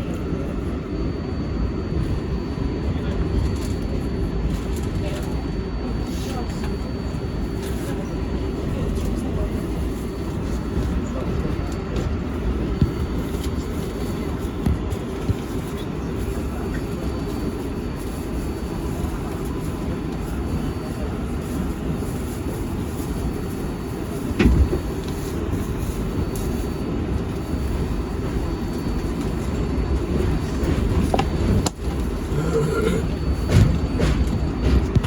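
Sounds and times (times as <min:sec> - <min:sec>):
subway wheels rumbling on rail: 0:00.0 - 0:35.0.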